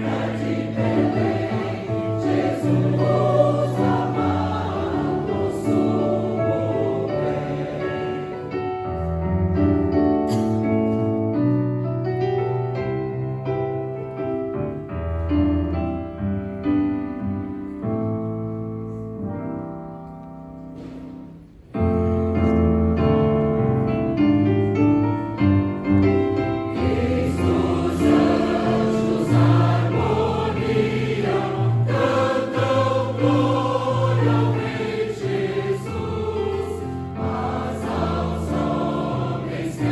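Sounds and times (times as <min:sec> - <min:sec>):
church choir singing carols: 0:00.0 - 0:09.9, 0:26.2 - 0:39.9.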